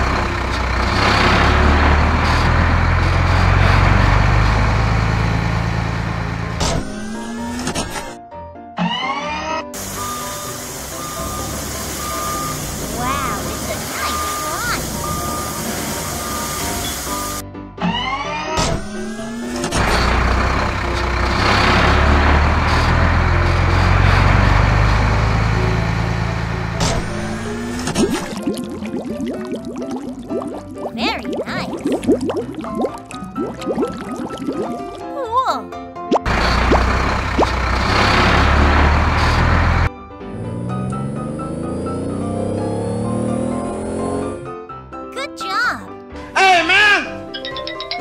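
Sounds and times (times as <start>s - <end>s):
truck engine pulling away: 0.0s - 8.2s, 9.2s - 17.4s, 18.0s - 30.8s, 36.2s - 44.8s
loud hiss: 9.8s - 17.4s.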